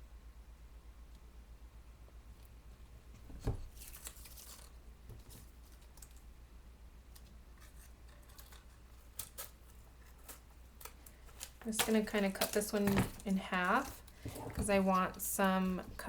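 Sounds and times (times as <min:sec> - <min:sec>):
paper rustling and crinkling: 0:03.3 - 0:06.3, 0:07.2 - 0:16.0.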